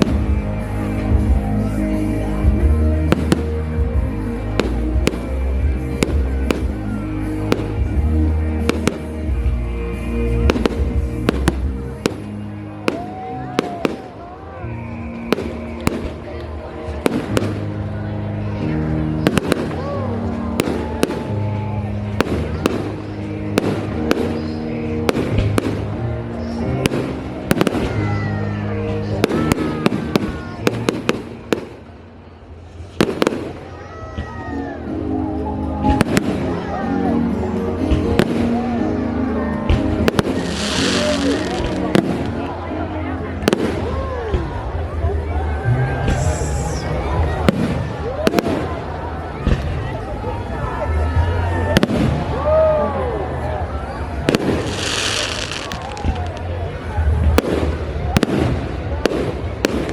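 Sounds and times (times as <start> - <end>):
music playing: 0.0 - 59.9
fireworks bangs: 15.1 - 17.8, 26.7 - 28.2, 32.8 - 34.2, 39.7 - 42.6, 43.4 - 44.6, 46.0 - 48.8, 51.7 - 52.4, 54.2 - 59.9.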